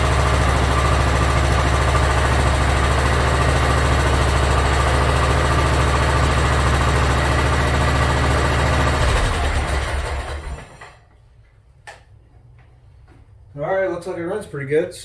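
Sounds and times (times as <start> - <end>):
riding mower engine running: 0.0 - 11.0.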